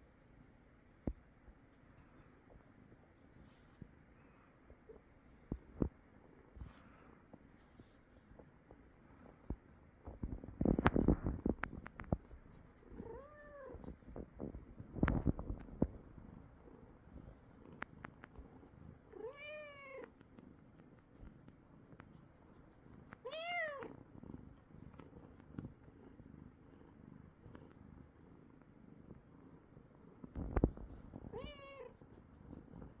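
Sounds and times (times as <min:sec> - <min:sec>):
cat purring: 0:07.6 - 0:33.0
cat meowing: 0:23.2 - 0:23.9, 0:31.3 - 0:31.9.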